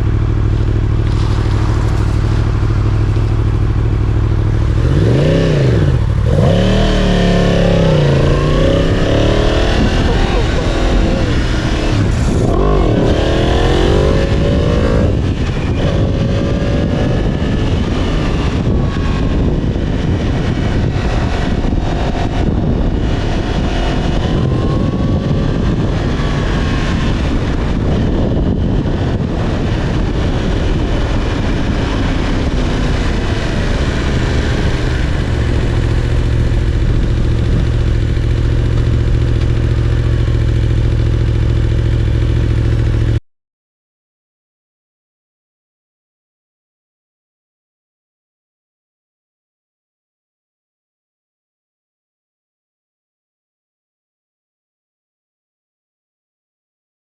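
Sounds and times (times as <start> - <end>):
wind rush: 0.0 - 41.2
motorcycle engine revving: 0.0 - 43.2.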